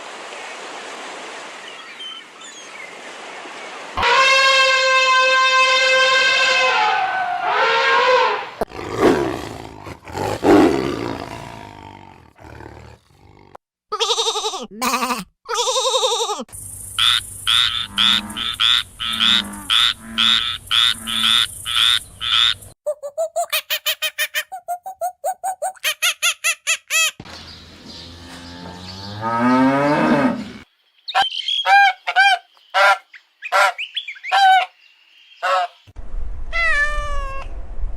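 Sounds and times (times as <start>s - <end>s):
rough animal roar: 7.2s - 13.6s, 28.2s - 30.7s.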